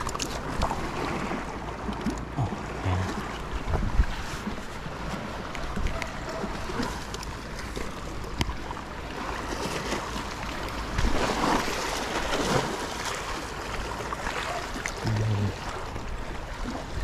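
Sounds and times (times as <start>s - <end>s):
water rushing: 0.0s - 17.0s
water sloshing: 0.0s - 17.0s
wind on microphone: 2.4s - 5.0s.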